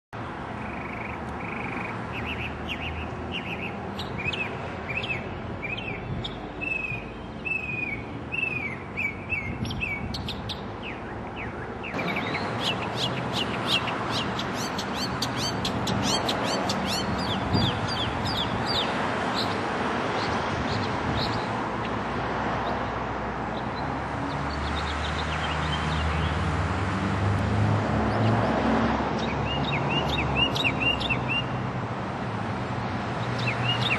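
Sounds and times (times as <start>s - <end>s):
songbird chirping: 0.6s - 19.6s.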